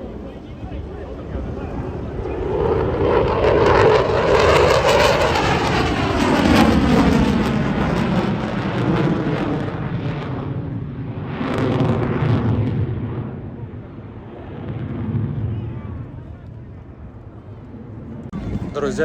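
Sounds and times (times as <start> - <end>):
jet aircraft flying past: 0.0 - 19.0.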